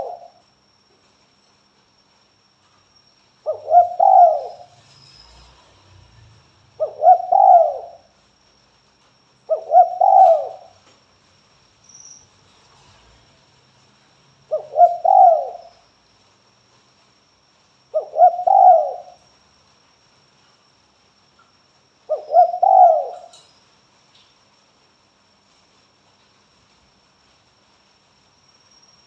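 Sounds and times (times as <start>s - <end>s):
dove cooing: 0.0s - 0.3s, 3.5s - 4.8s, 6.8s - 8.0s, 9.5s - 10.8s, 14.5s - 15.7s, 18.0s - 19.2s, 22.1s - 23.4s.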